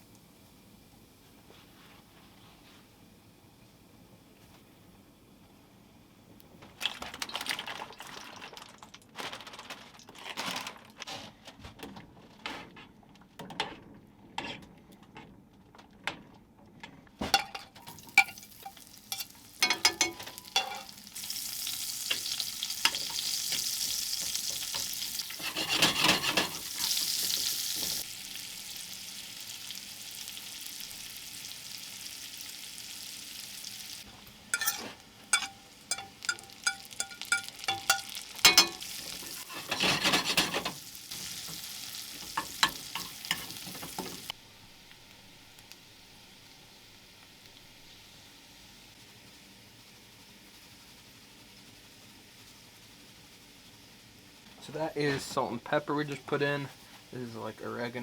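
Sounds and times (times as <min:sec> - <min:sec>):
food sizzling in a pan: 0:17.3 - 0:58.0
utensils clicking on cookware: 0:17.4 - 0:20.9, 0:24.2 - 0:27.4, 0:34.5 - 0:40.8, 0:42.2 - 0:44.3.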